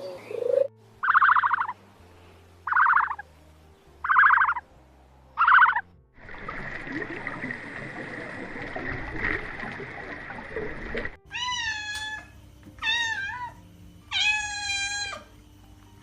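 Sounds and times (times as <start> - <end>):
cat meowing: 11.3 - 15.3.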